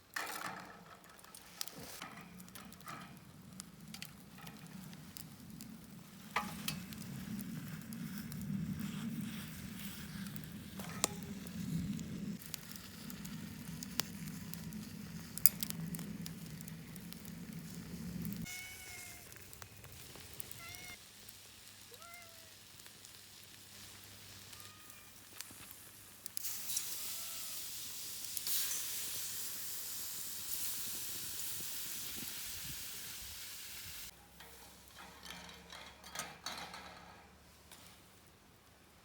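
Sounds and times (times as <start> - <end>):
food sizzling in a hot pan: 26.4 - 34.2.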